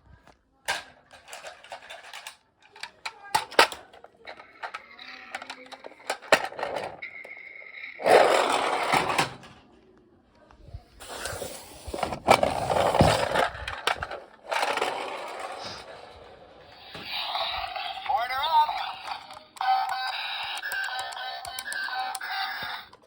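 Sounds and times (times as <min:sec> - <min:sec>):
plastic wheels rolling and scraping: 0:01.1 - 0:09.6, 0:11.0 - 0:20.2.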